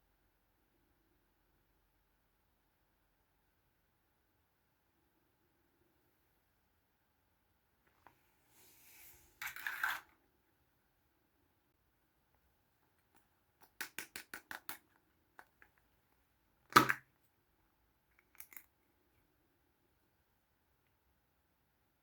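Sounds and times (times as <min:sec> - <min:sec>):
plastic toy pieces clicking: 0:13.6 - 0:14.8.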